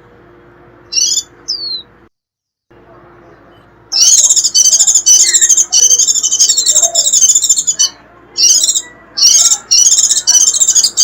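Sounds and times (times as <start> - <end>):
bird high-pitched twittering: 0.8 - 1.9, 3.3 - 11.0.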